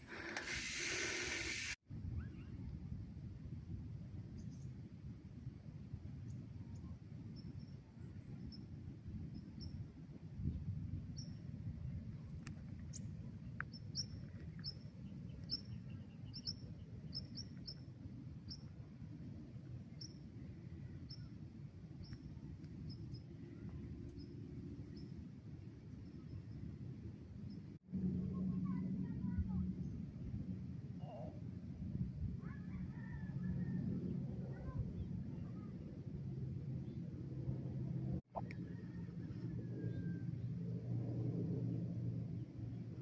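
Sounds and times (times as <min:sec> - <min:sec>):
faint high insect drone: 0:00.0 - 0:12.3
steady low rumble: 0:01.9 - 0:43.0.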